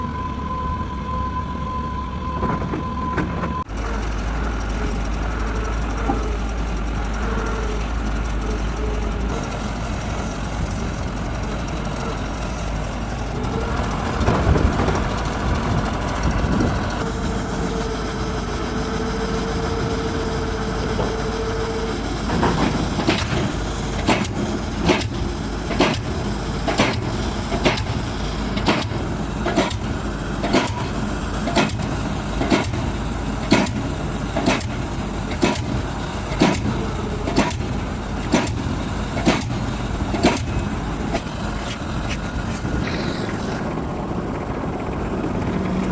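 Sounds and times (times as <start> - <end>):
diesel engine running: 0.0 - 45.9
machine whine: 0.0 - 45.9
pile hammer strikes: 22.3 - 42.2.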